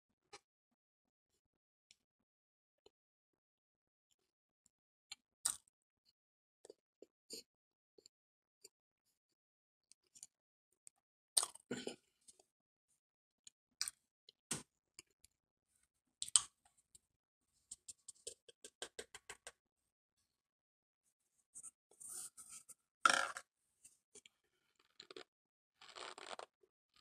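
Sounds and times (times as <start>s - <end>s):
chewing dry powder clicks: 24.9s - 26.5s.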